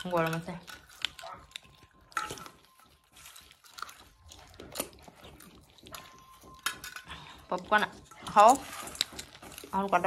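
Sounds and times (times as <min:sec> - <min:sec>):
people eating popcorn: 0:00.0 - 0:10.0.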